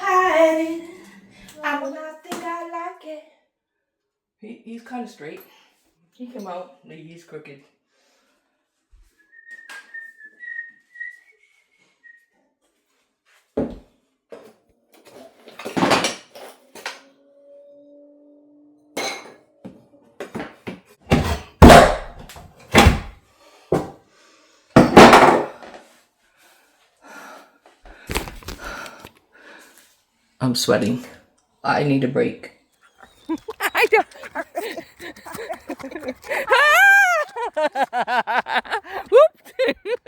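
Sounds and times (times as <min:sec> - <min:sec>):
wood boards knocking and crashing: 0:21.1 - 0:22.1, 0:22.8 - 0:23.1, 0:24.8 - 0:25.5.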